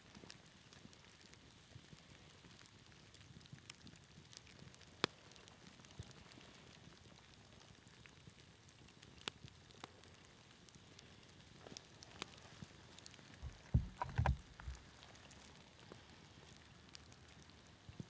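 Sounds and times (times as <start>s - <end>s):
light rain falling: 0.0s - 18.0s
low thumps and knocks: 13.4s - 14.8s.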